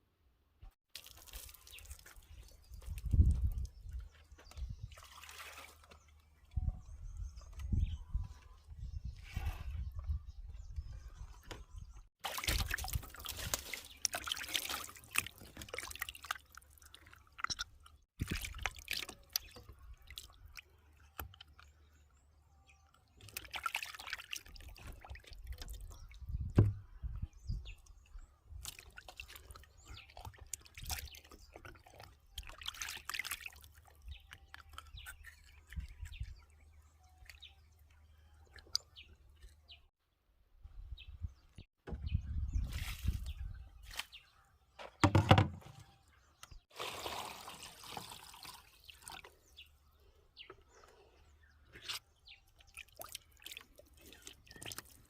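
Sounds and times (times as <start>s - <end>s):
water sloshing and dripping: 0.9s - 6.6s, 12.2s - 39.7s, 46.4s - 55.0s
dull thump: 26.5s - 26.8s, 45.0s - 45.8s.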